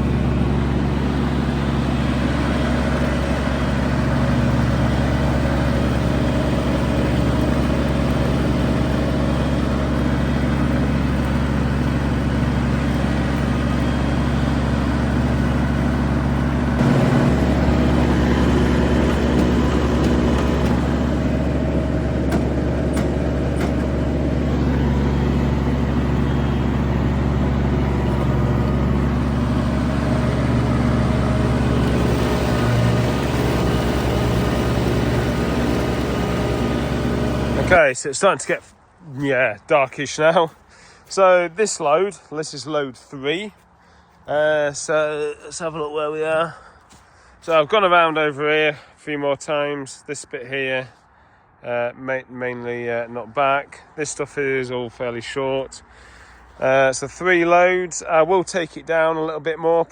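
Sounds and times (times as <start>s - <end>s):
ride-on mower cutting grass: 0.0s - 37.9s.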